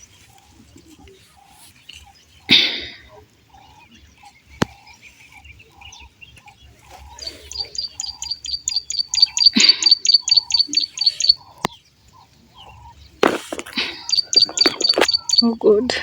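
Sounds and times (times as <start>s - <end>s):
bird calling high sharp notes: 6.9s - 11.8s, 12.6s - 15.8s
sharp click: 13.2s - 15.4s.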